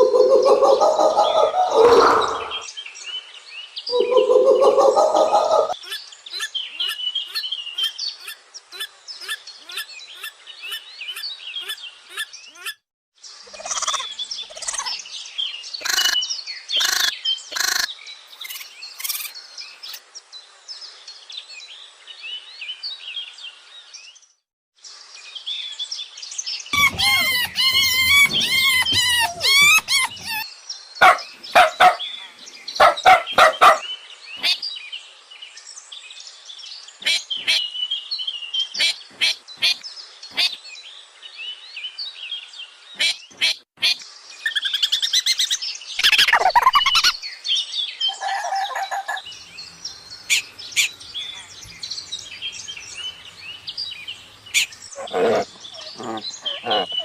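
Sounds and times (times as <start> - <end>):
birds chirping and calling: 0.0 - 2.7, 3.9 - 12.8, 13.4 - 20.0, 26.8 - 34.8, 36.9 - 40.6, 42.9 - 57.0.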